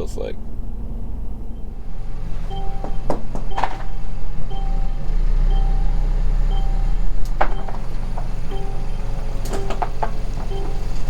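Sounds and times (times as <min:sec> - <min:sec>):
car road and engine rumble: 0:00.0 - 0:11.0
sharp knocks: 0:02.6 - 0:04.0, 0:07.3 - 0:11.0.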